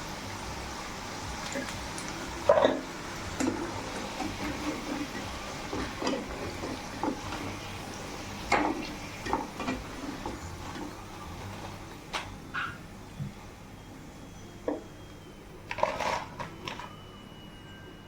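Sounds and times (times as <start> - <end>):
chicken sizzling in hot oil: 0.0 - 14.4.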